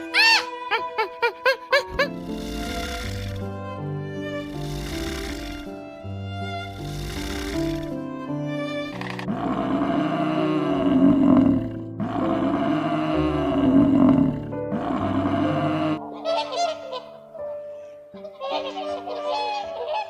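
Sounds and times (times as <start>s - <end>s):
background music: 0.0s - 20.0s
big cat roaring: 9.0s - 16.0s.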